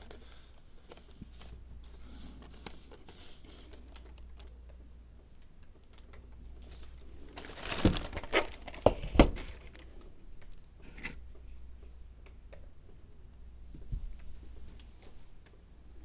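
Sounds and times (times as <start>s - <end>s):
material crinkling and rustling: 0.0s - 4.6s, 5.7s - 11.2s.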